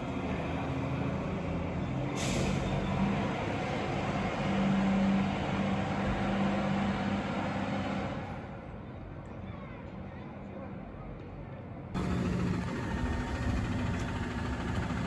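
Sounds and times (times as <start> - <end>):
air brake hiss: 2.2 - 2.8
diesel truck engine running: 12.0 - 15.0.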